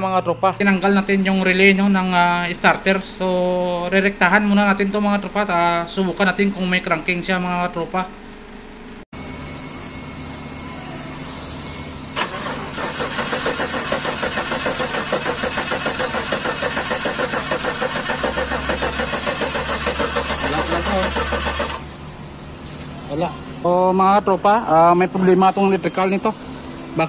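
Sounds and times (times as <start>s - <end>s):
engine cranking by starter: 12.2s - 22.0s.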